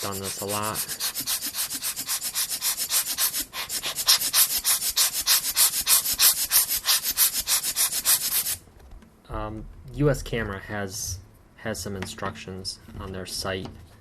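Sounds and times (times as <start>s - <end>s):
scratchy rubbing strokes: 0.0s - 8.6s.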